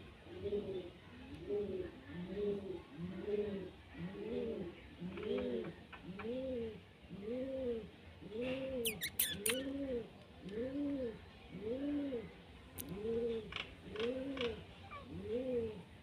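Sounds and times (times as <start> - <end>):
bird cooing: 0.3 - 12.3, 12.9 - 15.8.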